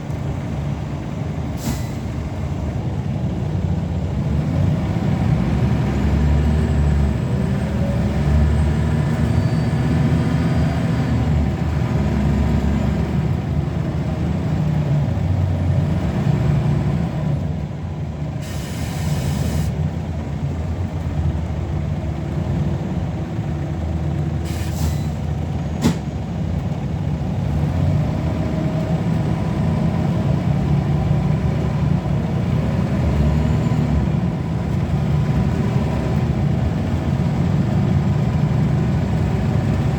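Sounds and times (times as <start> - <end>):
bus engine running: 0.0 - 39.9
brake air hiss: 1.6 - 2.2, 18.4 - 19.8, 24.4 - 25.2.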